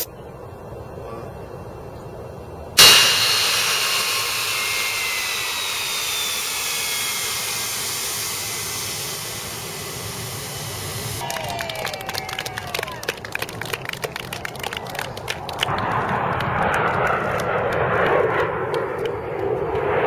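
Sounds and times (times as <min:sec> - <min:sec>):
jet engines passing: 0:00.0 - 0:20.0.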